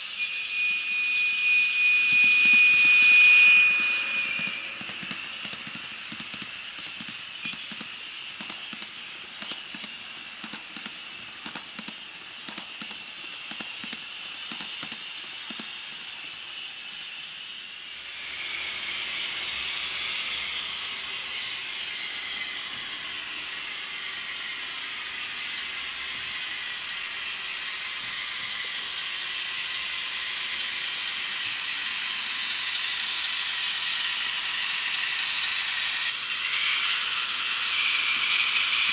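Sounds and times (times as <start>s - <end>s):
hiss with irregular clicks: 4.3s - 18.0s.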